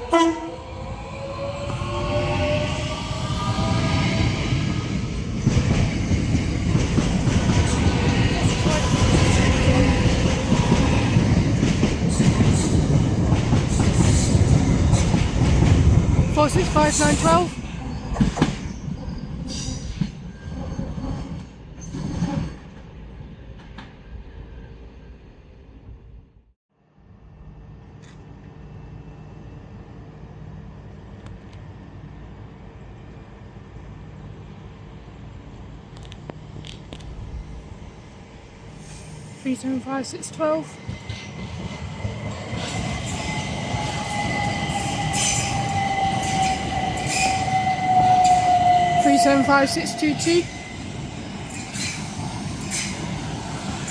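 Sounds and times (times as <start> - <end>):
electric train rumbling: 0.0 - 53.9
train wheels squealing: 5.9 - 13.1, 13.7 - 15.4, 16.3 - 22.8, 38.7 - 39.6, 40.5 - 53.9.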